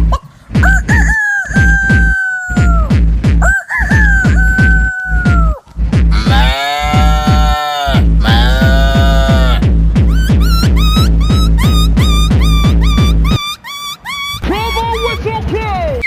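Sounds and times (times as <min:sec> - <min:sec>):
dance music kick drum beat: 0:00.0 - 0:13.4
man imitating rooster crow: 0:00.6 - 0:09.6.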